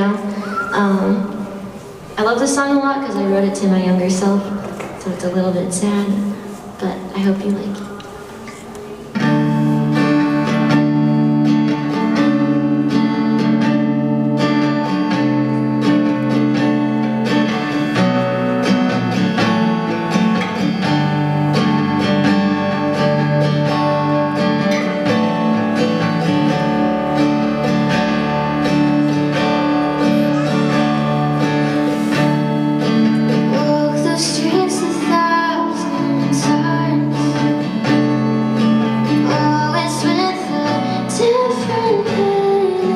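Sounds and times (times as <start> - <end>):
guitar: 0.0 - 42.9
woman singing: 33.3 - 38.0, 39.0 - 42.9.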